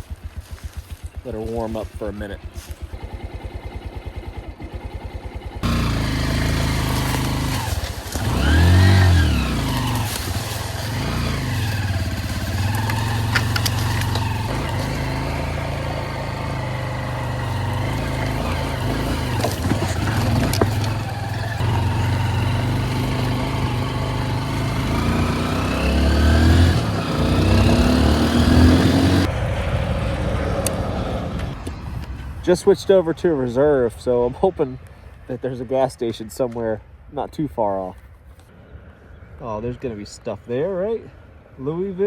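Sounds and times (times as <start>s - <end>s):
motorcycle engine revving: 0.0s - 31.8s.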